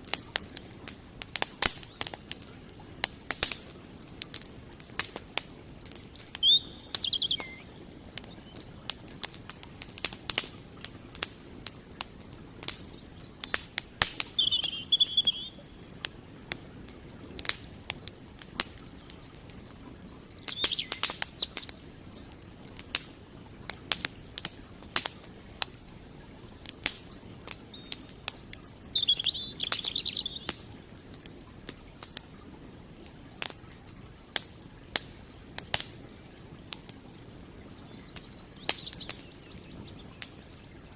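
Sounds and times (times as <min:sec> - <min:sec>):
campfire crackling and popping: 0:00.0 - 0:40.9
creek flowing: 0:00.0 - 0:40.9
small bird chirping: 0:05.7 - 0:08.8, 0:13.4 - 0:15.6, 0:20.4 - 0:21.8, 0:27.7 - 0:30.7, 0:37.6 - 0:40.9.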